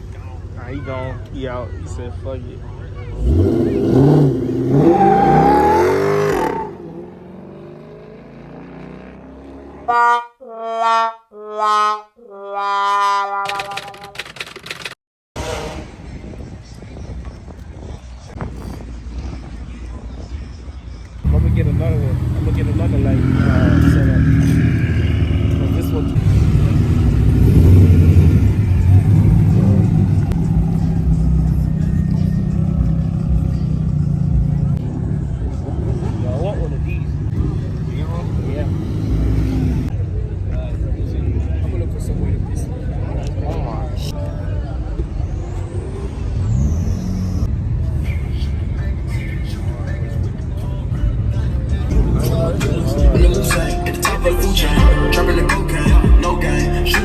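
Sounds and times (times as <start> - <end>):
car engine revving: 3.0 - 9.9, 21.2 - 40.0, 51.6 - 57.0
brass-like horn notes: 9.8 - 14.2.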